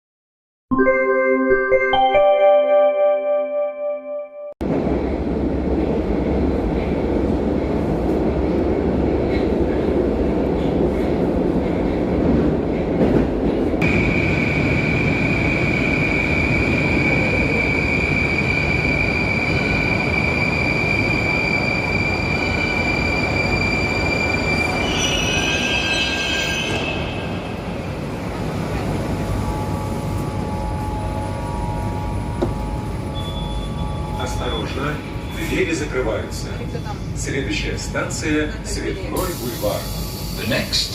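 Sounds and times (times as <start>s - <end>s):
metro train rumble: 4.6s - 40.9s
high squealing tones: 16.0s - 27.8s.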